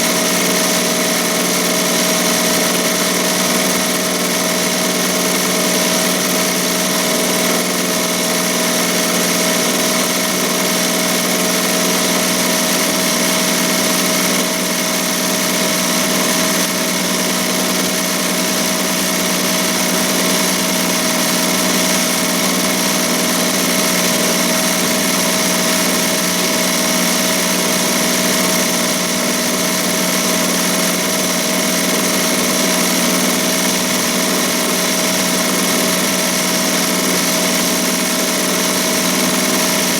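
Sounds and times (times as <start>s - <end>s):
embroidery machine stitching: 0.0s - 39.9s.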